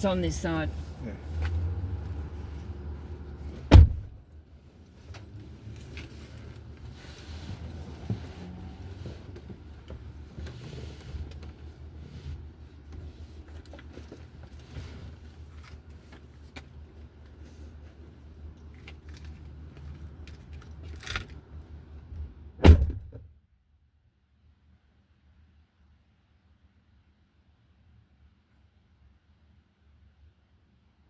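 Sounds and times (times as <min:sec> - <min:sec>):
car engine humming: 0:00.0 - 0:12.9
loud thump: 0:03.7 - 0:04.2, 0:22.6 - 0:23.3
small clicks and rustles: 0:05.0 - 0:11.6, 0:12.9 - 0:21.7.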